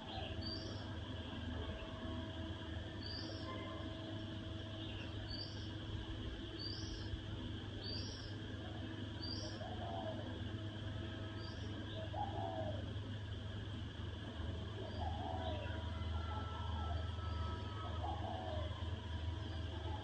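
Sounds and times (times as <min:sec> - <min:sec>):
steady low hum: 0:00.0 - 0:20.0
dove cooing: 0:09.3 - 0:10.5, 0:11.6 - 0:13.0, 0:14.6 - 0:20.0.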